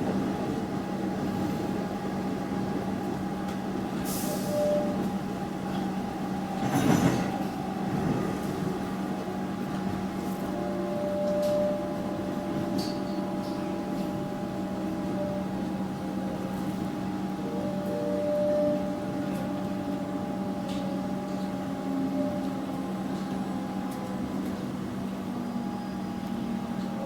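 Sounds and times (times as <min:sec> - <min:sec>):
train rumble: 0:00.0 - 0:27.0
train wheels rolling on track: 0:00.0 - 0:27.0.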